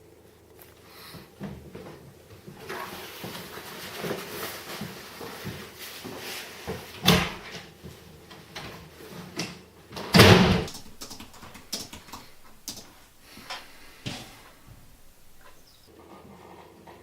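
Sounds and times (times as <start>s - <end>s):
door thud: 7.0s - 7.5s, 10.2s - 11.5s, 12.2s - 15.7s
small clicks and knocks: 10.6s - 15.9s.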